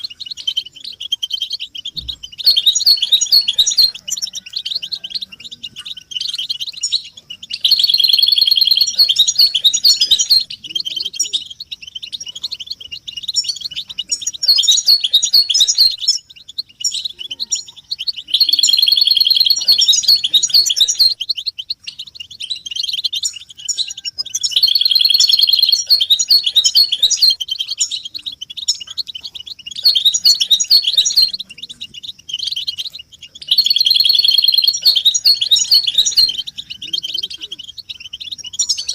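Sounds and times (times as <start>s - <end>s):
finches twittering and singing: 0.0s - 38.9s.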